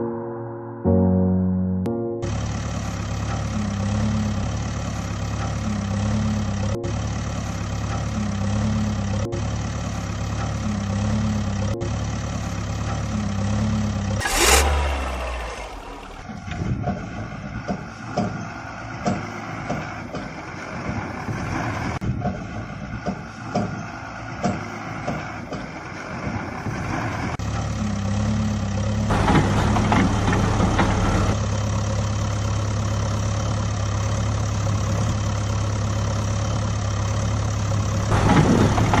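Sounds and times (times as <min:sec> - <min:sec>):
engine idling: 0:02.2 - 0:21.3, 0:27.3 - 0:39.0.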